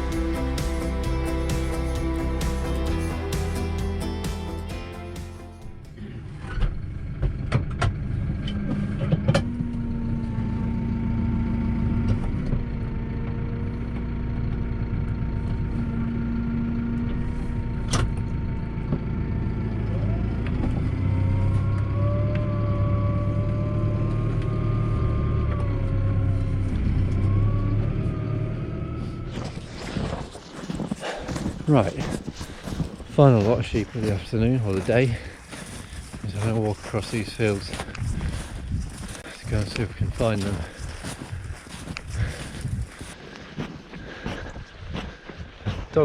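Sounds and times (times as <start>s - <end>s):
tractor engine running: 0.0s - 46.0s.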